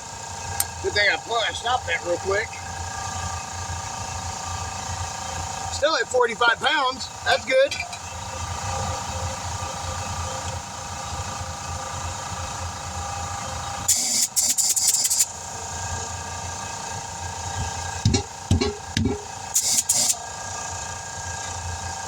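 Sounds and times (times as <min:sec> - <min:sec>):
small engine running: 0:00.0 - 0:22.0
compressed air hissing: 0:13.8 - 0:15.5, 0:17.5 - 0:20.3.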